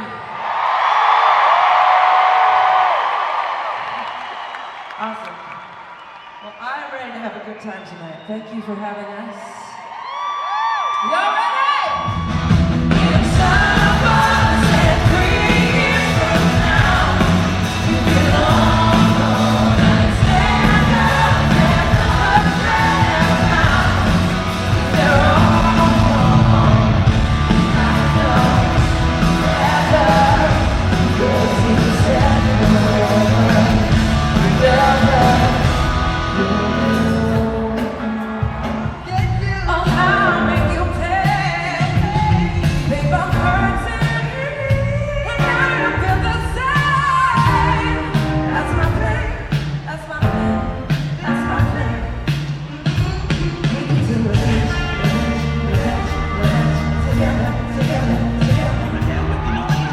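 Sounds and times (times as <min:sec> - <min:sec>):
live rock band playing: 0:12.1 - 0:59.9
woman singing: 0:39.6 - 0:49.5.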